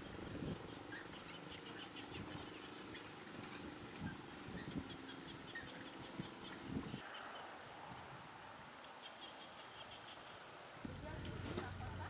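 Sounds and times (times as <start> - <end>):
insects chirping: 0.0 - 12.0
insects droning: 0.0 - 12.0.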